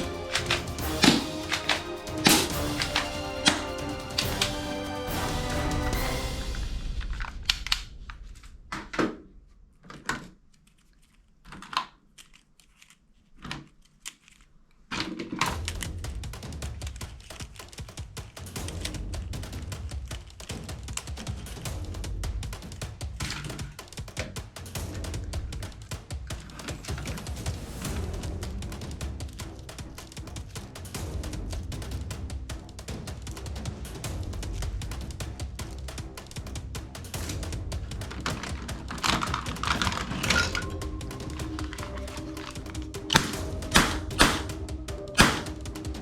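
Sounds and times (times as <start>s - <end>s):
handling clicks and knocks: 0.0s - 4.8s, 16.6s - 18.9s, 22.4s - 27.5s, 34.6s - 46.0s
music: 0.0s - 8.1s, 15.5s - 46.0s
crinkling: 6.5s - 18.6s, 37.1s - 46.0s.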